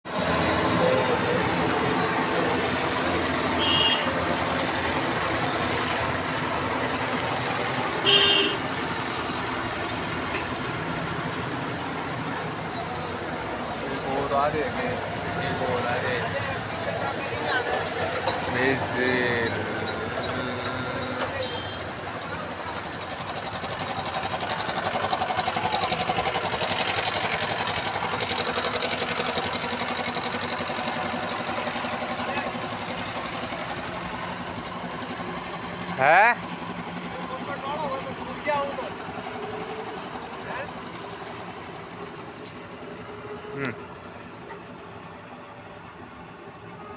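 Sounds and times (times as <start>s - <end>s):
road traffic: 0.0s - 46.9s
truck engine running: 0.1s - 46.9s
vehicle horn toots: 3.6s - 4.2s, 8.0s - 8.8s, 21.4s - 21.9s.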